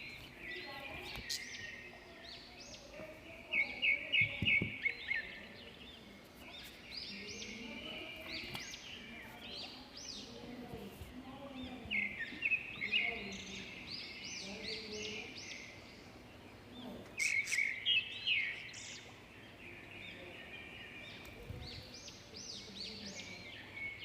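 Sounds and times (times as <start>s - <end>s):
budgerigars chirping: 0.4s - 3.0s.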